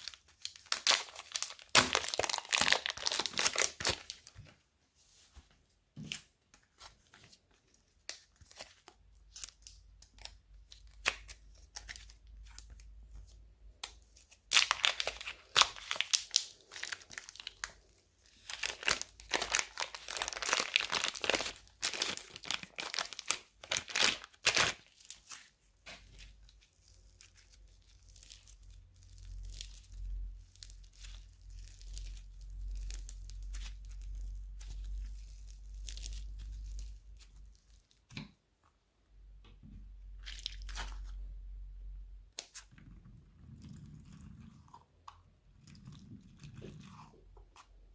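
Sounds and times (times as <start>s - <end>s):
plastic bags crinkling: 0.0s - 4.4s, 14.4s - 25.3s.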